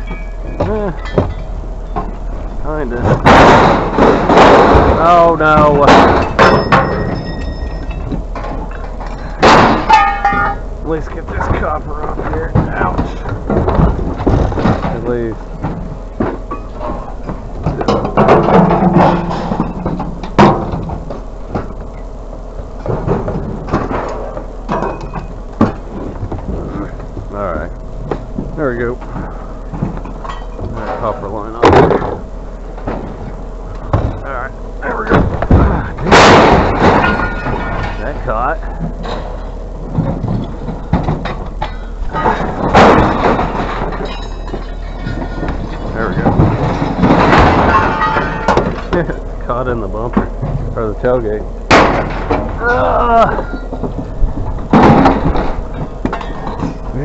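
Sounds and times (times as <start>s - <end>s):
metal knocks and clanks: 0.0s - 22.1s, 22.8s - 52.6s, 53.3s - 57.0s
steady low hum: 0.0s - 57.0s
sharp metal bangs: 2.8s - 11.8s, 33.9s - 38.2s, 40.8s - 49.0s, 51.6s - 52.6s.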